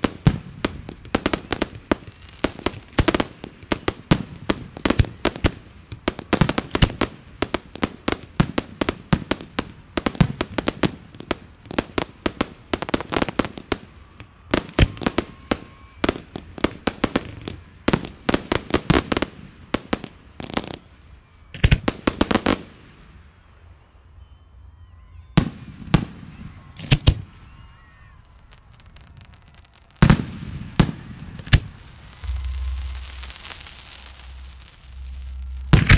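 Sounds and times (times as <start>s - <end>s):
fireworks sharp reports: 0.0s - 24.2s, 24.8s - 35.9s
loud firework booms: 29.4s - 35.9s.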